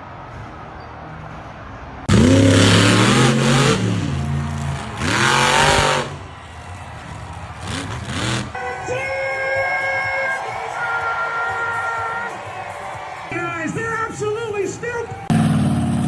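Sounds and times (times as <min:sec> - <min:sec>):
truck engine revving: 0:02.1 - 0:08.6, 0:15.3 - 0:16.0.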